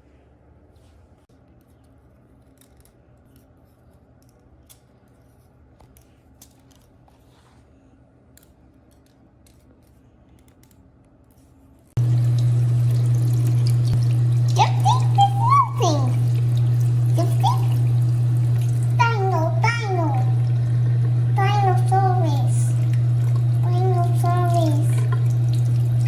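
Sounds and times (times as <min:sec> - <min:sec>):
low hum: 0:12.0 - 0:26.0
running water rushing: 0:12.0 - 0:26.0.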